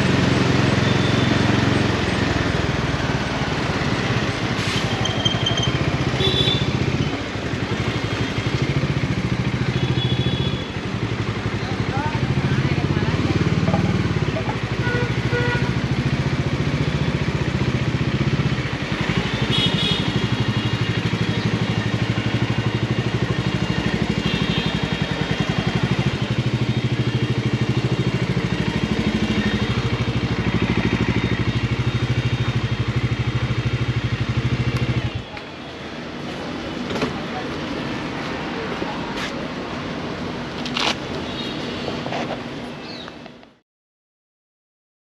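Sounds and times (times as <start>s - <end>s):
motorcycle engine running: 0.0s - 35.4s.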